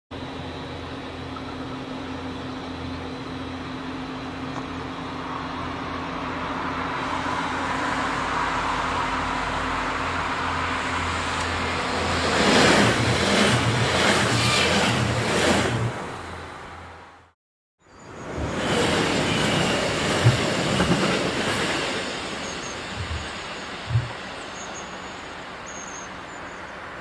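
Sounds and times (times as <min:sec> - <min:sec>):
train rolling past: 0:00.2 - 0:17.3, 0:17.9 - 0:27.0
wheel-on-rail noise: 0:18.0 - 0:27.0.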